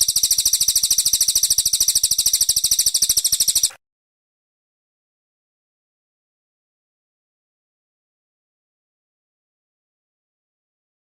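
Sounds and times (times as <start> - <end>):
bird singing high trill: 0.0 - 3.8.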